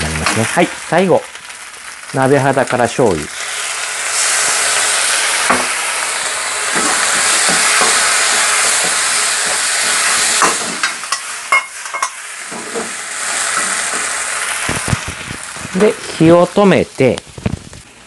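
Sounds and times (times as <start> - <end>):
sauce hitting hot metal: 0.0 - 16.0
rice sizzling in a wok: 0.0 - 18.0
wok clacking and knocking: 5.4 - 5.8, 6.6 - 15.2.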